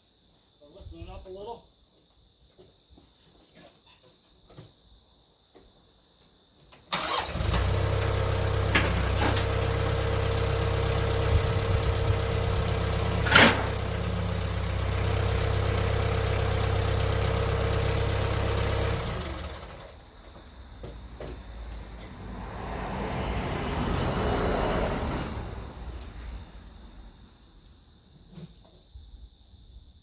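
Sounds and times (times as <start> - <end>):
tractor engine idling: 7.0 - 20.3.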